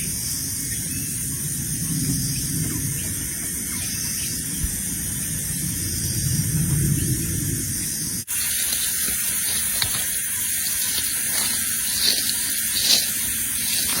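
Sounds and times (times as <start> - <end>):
rushing water: 8.3 - 14.0.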